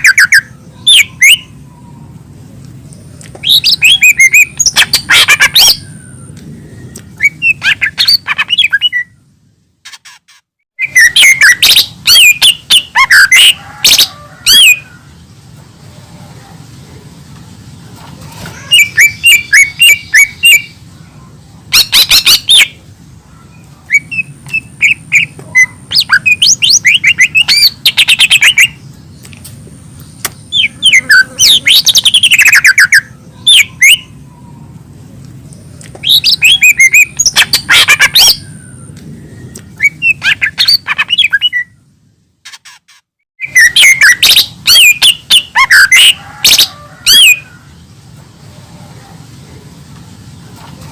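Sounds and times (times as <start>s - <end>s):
bird singing chirps and whistles: 0.0s - 1.6s, 3.4s - 9.2s, 10.8s - 14.8s, 18.7s - 20.8s, 21.8s - 22.8s, 23.5s - 28.8s, 30.3s - 34.2s, 36.0s - 41.9s, 43.4s - 47.4s.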